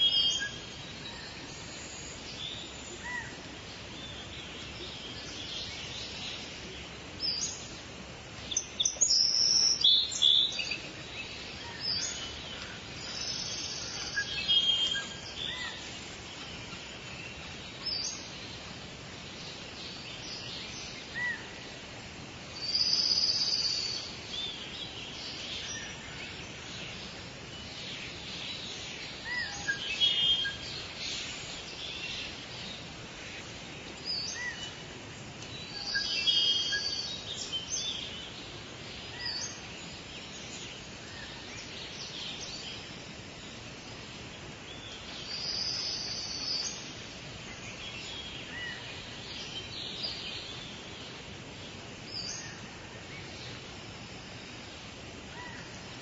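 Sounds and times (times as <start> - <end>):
birds chirping and whistling: 0.0 - 3.4, 8.5 - 18.3, 35.5 - 38.4
background hiss: 0.0 - 56.0.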